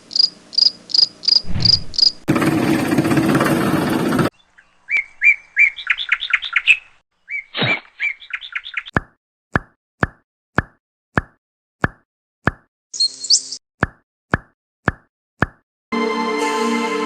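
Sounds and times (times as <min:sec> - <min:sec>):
bird-like chirping: 0:00.1 - 0:02.3, 0:04.3 - 0:09.0, 0:12.9 - 0:13.6.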